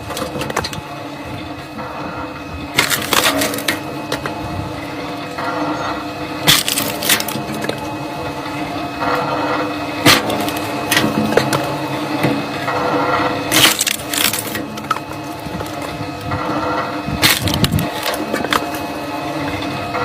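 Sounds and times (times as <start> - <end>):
logs splitting cracks: 0.0 - 0.8, 2.7 - 4.4, 6.4 - 7.9, 10.0 - 12.4, 13.0 - 16.6, 17.2 - 19.7
engine hum: 0.0 - 20.0.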